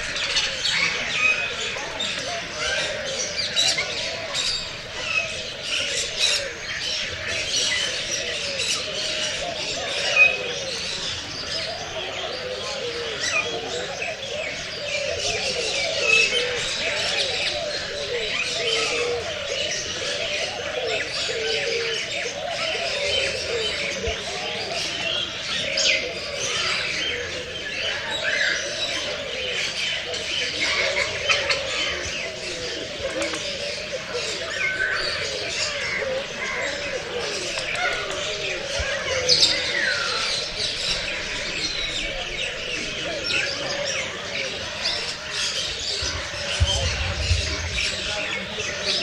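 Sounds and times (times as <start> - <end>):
birds chirping in chorus: 0.0 - 49.0
low bird warbling: 33.9 - 49.0.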